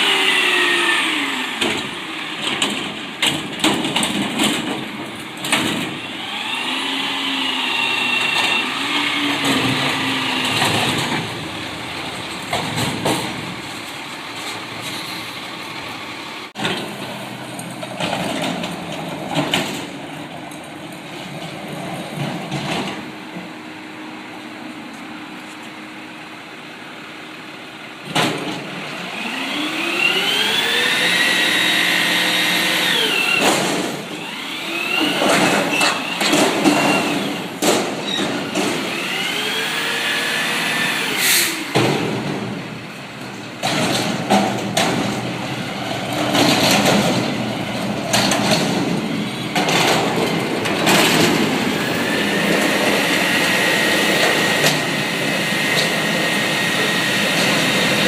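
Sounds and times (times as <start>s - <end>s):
garbage truck diesel engine revving: 0.0s - 20.4s, 26.2s - 58.0s
loud metal clanks and bangs: 1.6s - 6.2s, 8.2s - 13.8s, 32.6s - 34.3s, 34.9s - 39.2s, 41.2s - 58.0s.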